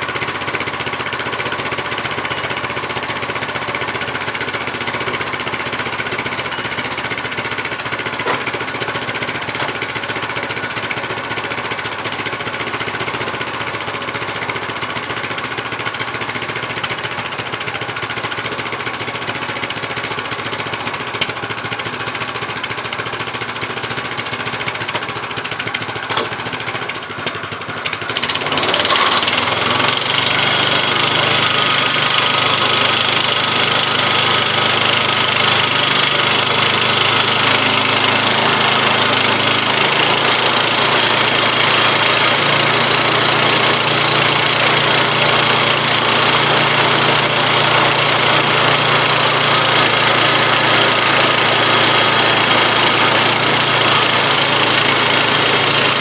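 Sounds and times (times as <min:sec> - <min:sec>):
gasoline engine running: 0:19.3 - 0:56.0
band blade cutting log: 0:28.2 - 0:56.0.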